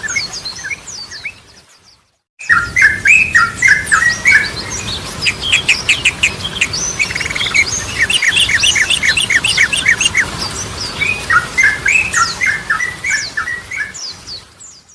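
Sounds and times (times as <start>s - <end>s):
bird singing: 2.4s - 10.3s.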